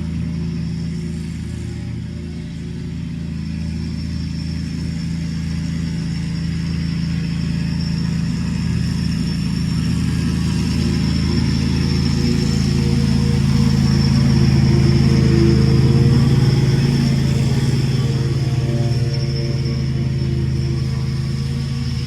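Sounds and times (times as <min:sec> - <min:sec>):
lawnmower engine running: 0:00.0 - 0:22.0
thin high whine: 0:00.0 - 0:22.0.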